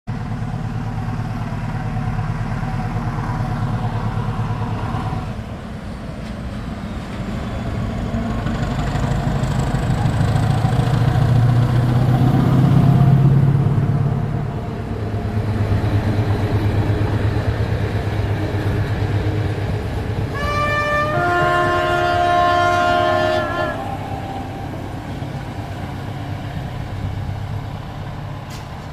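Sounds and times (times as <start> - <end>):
diesel locomotive engine rumble: 0.1 - 28.9
locomotive horn: 20.3 - 24.8.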